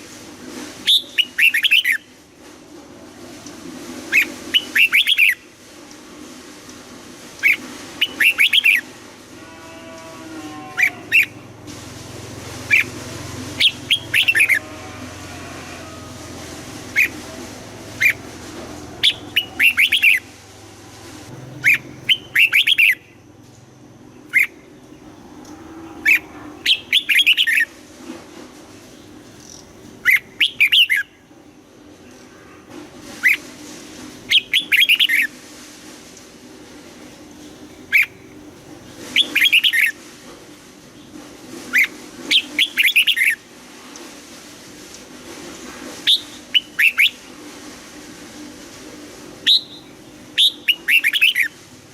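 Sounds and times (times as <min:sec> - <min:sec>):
low background hum: 0:00.4 - 0:44.2
bird singing: 0:21.5 - 0:23.2.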